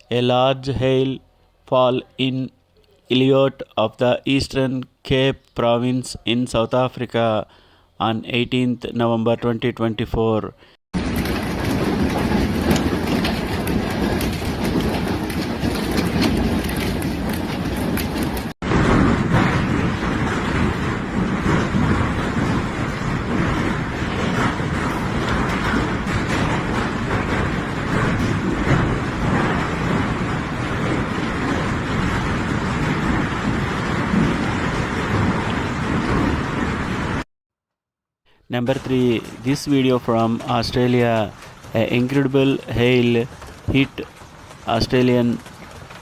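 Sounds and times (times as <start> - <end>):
heavy hail falling: 11.0 - 37.2, 38.5 - 46.0.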